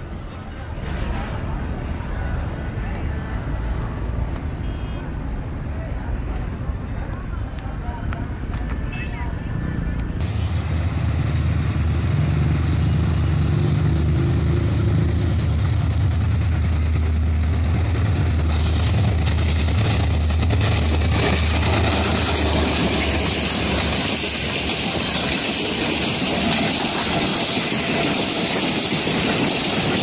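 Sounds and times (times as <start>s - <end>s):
rail and wheel noise: 0.0s - 30.0s
deep diesel engine drone: 10.2s - 24.2s.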